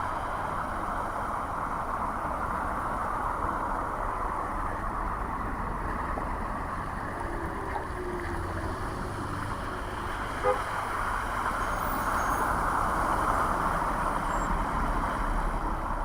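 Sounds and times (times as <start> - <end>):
passing vehicles: 0.0 - 16.0
faint pitched engine tone: 11.4 - 15.0.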